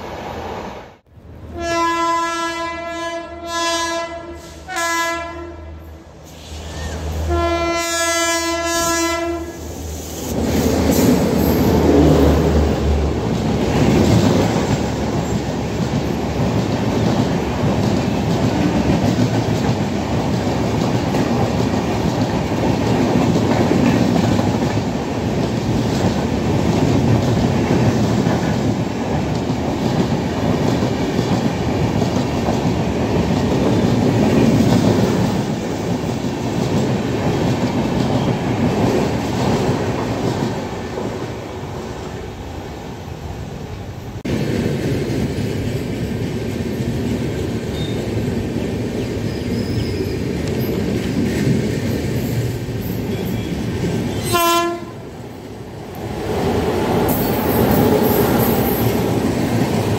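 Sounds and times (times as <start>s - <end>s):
locomotive horn: 1.5s - 5.8s, 7.2s - 9.6s, 53.2s - 55.1s
train wheels clattering on rails: 10.2s - 42.0s, 44.3s - 54.9s, 55.8s - 59.9s.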